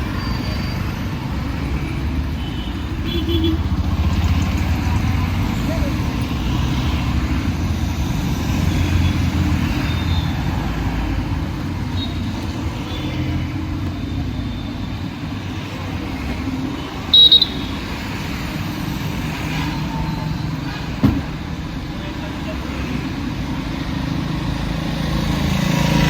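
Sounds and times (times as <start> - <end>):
city road traffic: 0.0 - 26.0
short high-pitched car horn toot: 17.1 - 17.7.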